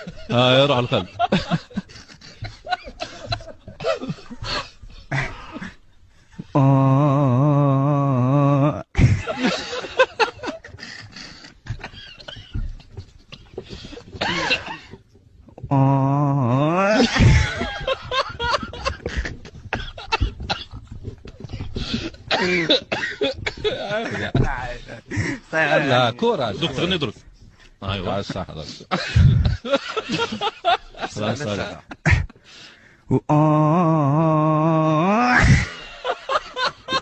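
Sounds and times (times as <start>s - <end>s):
man coughing: 2.8s - 5.8s, 13.5s - 15.0s, 22.3s - 24.5s
man singing comically: 33.1s - 35.3s.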